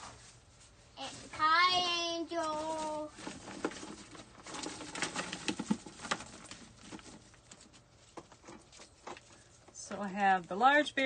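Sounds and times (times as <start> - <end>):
plastic branches rustling and clicking: 1.7 - 10.7.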